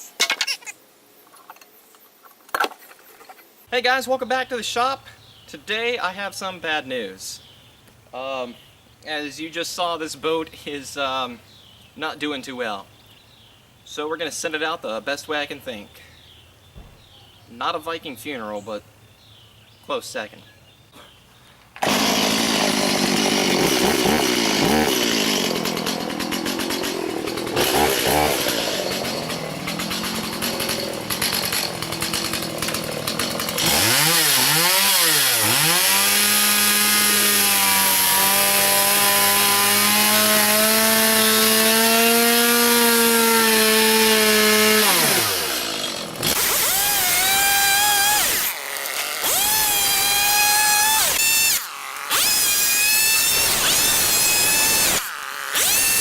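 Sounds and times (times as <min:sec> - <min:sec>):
power saw cutting wood: 0:21.8 - 0:56.0.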